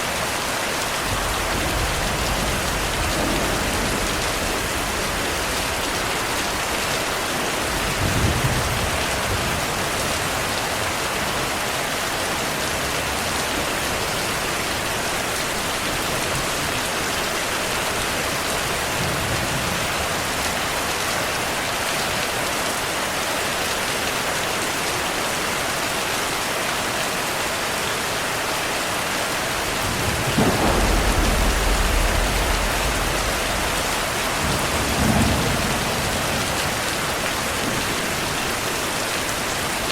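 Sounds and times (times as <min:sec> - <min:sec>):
heavy rain falling: 0:00.0 - 0:39.9
thunder rumbling: 0:01.0 - 0:09.8, 0:29.6 - 0:38.6.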